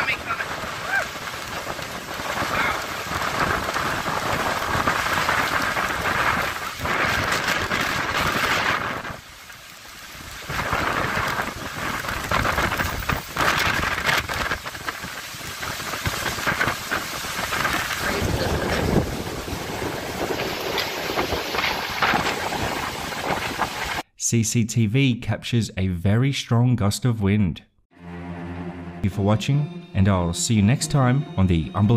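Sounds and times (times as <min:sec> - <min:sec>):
heavy rain: 0:00.0 - 0:24.0
strong wind: 0:00.0 - 0:24.0.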